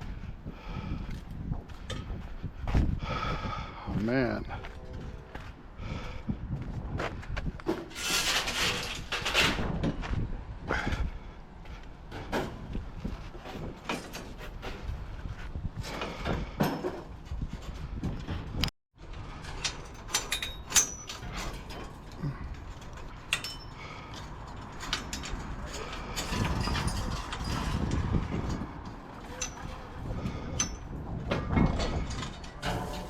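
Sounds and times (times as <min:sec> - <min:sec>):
scrap metal clanking and rattling: 0:07.7 - 0:10.1, 0:12.1 - 0:15.0, 0:15.8 - 0:33.0.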